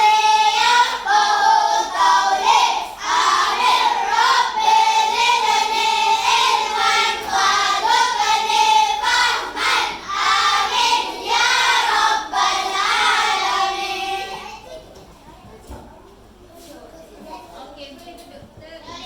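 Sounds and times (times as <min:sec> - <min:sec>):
children singing in unison: 0:00.0 - 0:14.6.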